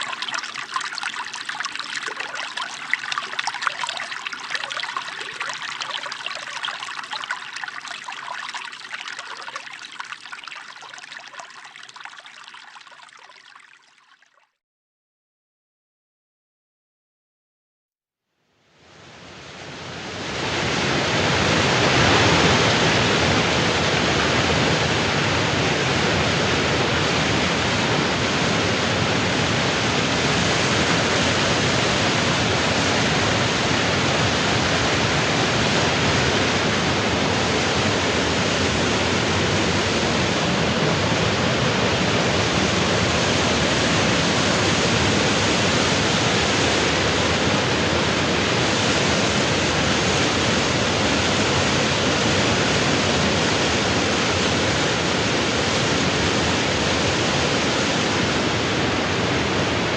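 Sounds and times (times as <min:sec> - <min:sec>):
rushing water: 0:00.0 - 0:14.4.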